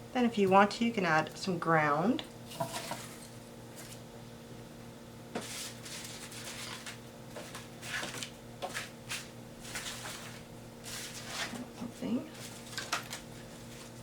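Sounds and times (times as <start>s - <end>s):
paper rustling: 5.4s - 14.0s.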